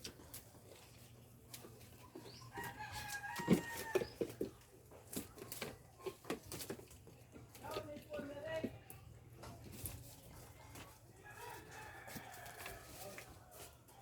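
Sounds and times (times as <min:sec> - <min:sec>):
rooster crowing: 0:11.2 - 0:13.3.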